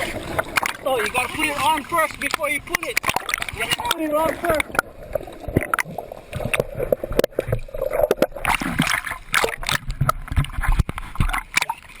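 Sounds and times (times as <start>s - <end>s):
seawater splashing and sloshing: 0.0s - 12.0s
people's voices: 0.8s - 3.0s, 3.6s - 4.8s.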